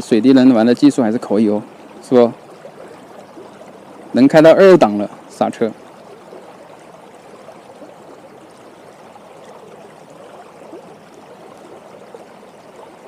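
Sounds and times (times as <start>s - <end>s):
water flowing and gurgling: 0.0s - 13.0s.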